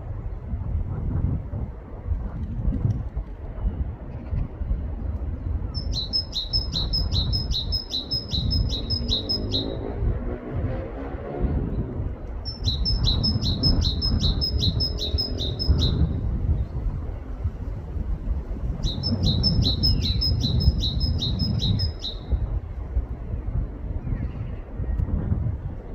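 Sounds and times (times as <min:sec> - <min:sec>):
steady low rumble: 0:00.0 - 0:25.9
bird singing two-note song: 0:05.8 - 0:09.8, 0:12.5 - 0:16.0.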